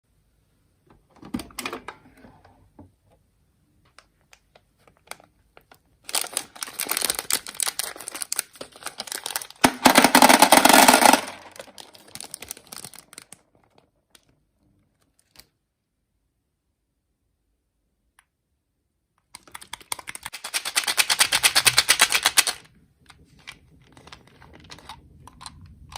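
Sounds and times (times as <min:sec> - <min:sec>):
candy wrapper crinkling: 0:04.1 - 0:15.6, 0:19.4 - 0:25.9.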